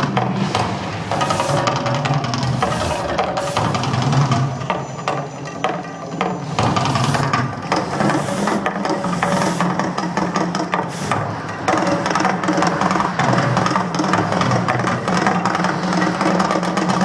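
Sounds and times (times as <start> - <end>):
hissing bursts: 0.9 - 4.6, 6.4 - 10.1, 10.7 - 11.7.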